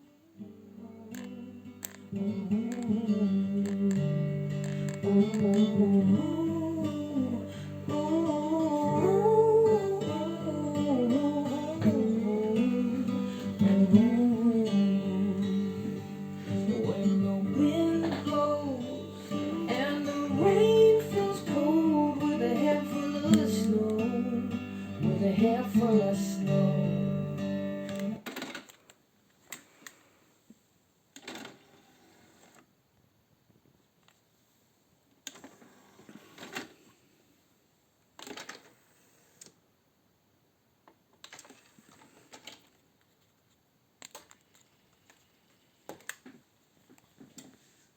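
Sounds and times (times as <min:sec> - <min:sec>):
song with guitar and singing: 0:00.4 - 0:28.2
faint clicks: 0:01.1 - 0:06.3.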